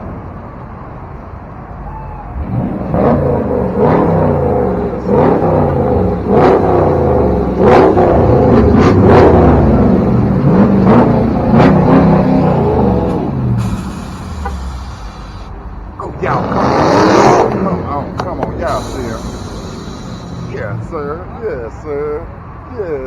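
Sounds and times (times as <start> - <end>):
car engine revving: 2.3 - 22.3
sharp exhaust pops: 13.0 - 15.5, 17.2 - 21.0.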